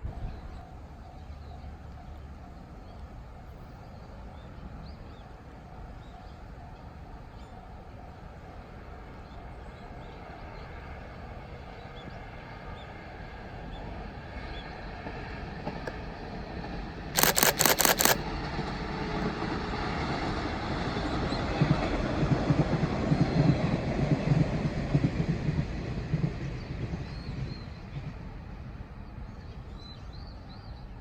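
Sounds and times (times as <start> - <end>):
camera shutter clicks: 17.2 - 18.2.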